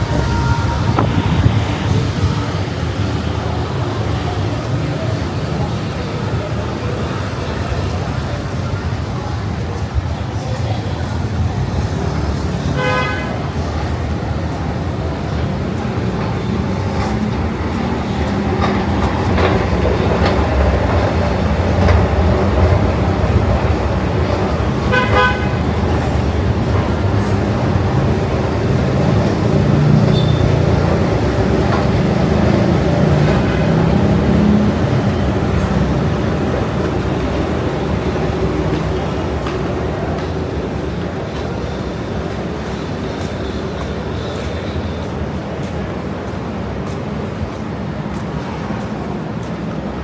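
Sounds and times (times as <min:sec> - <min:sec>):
road traffic rumble: 0:00.0 - 0:50.0
car horn toot: 0:12.8 - 0:13.4, 0:24.9 - 0:25.6.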